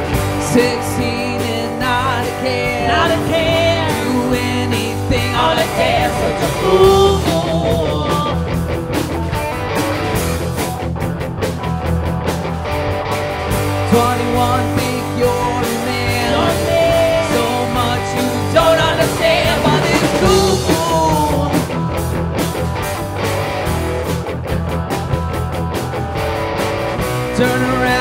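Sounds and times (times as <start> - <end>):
rock band playing: 0.0 - 28.0
person singing: 0.2 - 8.6, 13.8 - 21.9, 27.2 - 28.0.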